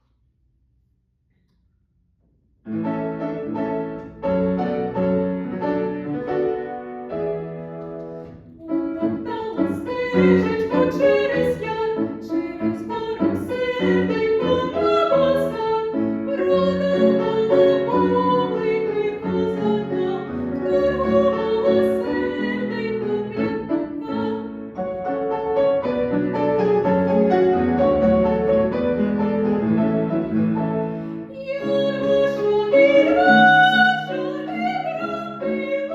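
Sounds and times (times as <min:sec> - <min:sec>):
piano accompaniment: 0:02.7 - 0:35.9
woman singing classical song: 0:08.6 - 0:25.0, 0:30.3 - 0:35.9.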